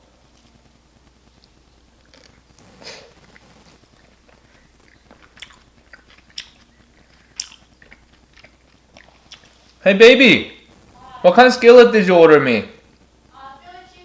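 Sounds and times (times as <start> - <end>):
chewing and biting food: 1.4 - 9.8.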